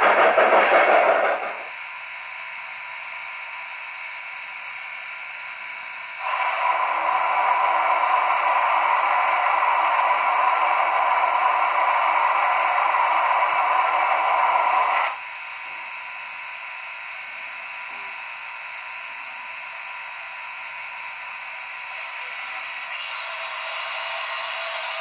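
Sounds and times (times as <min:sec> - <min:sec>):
steam hiss through small speaker: 0:21.8 - 0:25.0.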